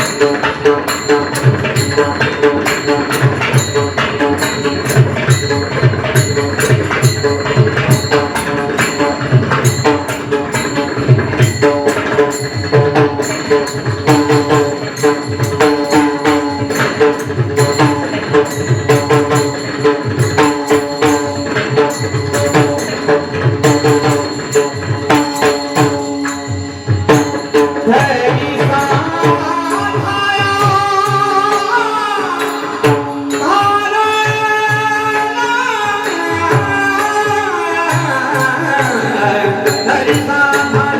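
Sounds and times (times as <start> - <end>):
hand drum fast rhythm: 0.0 - 40.9
held accompanying tones: 0.0 - 40.9
small jingling percussion: 0.0 - 40.9
man singing: 27.4 - 40.9.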